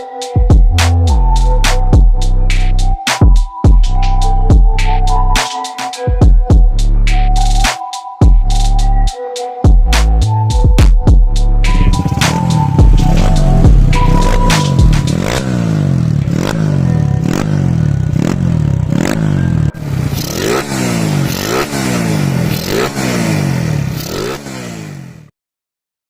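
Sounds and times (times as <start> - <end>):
motorcycle engine revving: 11.6 - 25.3.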